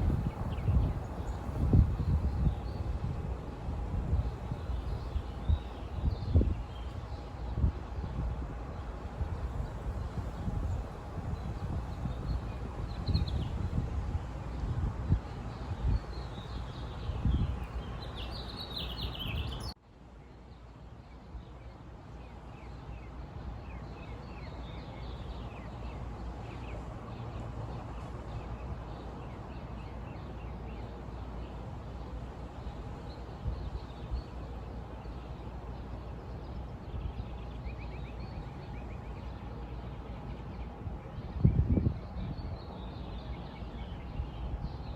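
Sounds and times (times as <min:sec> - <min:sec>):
low outdoor rumble: 0:00.0 - 0:19.8
birds chirping: 0:15.2 - 0:19.8, 0:22.2 - 0:44.9.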